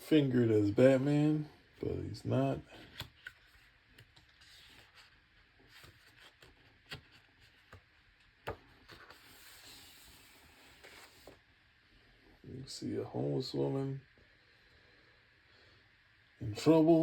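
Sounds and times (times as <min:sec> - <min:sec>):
paper pages rustling: 0:02.8 - 0:11.4.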